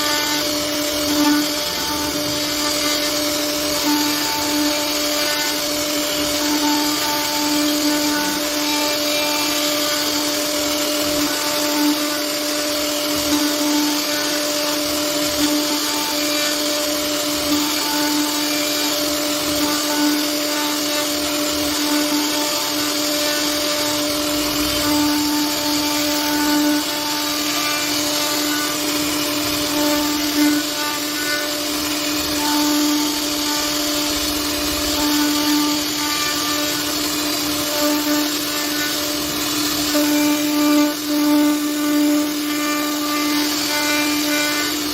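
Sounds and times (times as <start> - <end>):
bit carving wood hiss: 0.0 - 44.9
router spindle whine: 0.0 - 44.9.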